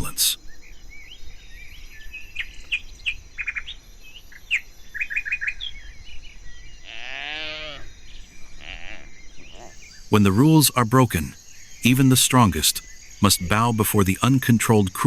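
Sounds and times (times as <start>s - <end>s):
birds chirping: 0.0s - 15.0s
high insect drone: 0.0s - 15.0s
wavering animal call: 6.8s - 7.9s, 8.5s - 10.3s.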